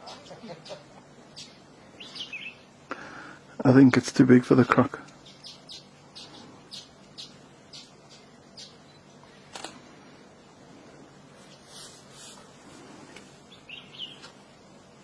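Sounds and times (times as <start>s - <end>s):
bird chirping: 0.0s - 2.8s, 3.8s - 9.5s, 13.1s - 14.4s.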